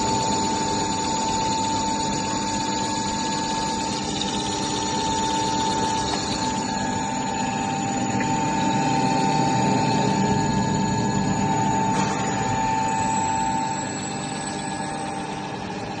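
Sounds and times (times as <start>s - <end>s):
machine motor hum with whine: 0.0s - 16.0s.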